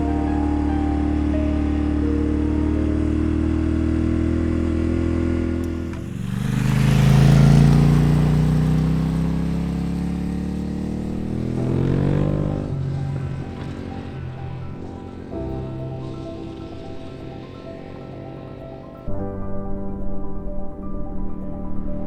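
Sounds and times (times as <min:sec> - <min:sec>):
motorcycle engine running: 0:00.0 - 0:19.1.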